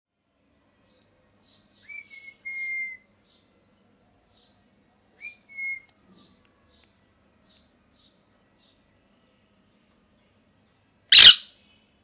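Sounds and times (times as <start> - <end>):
parrot loud whistle: 11.1 - 11.5
parrot soft chirps: 11.1 - 11.5.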